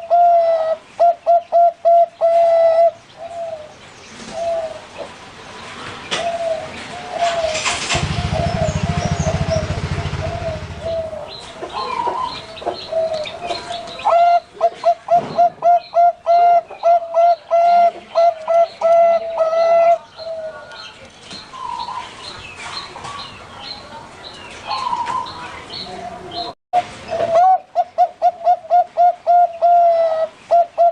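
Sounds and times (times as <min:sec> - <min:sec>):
doves cooing: 0:00.0 - 0:05.2, 0:06.1 - 0:20.8, 0:24.6 - 0:30.9
low hum: 0:07.9 - 0:11.4.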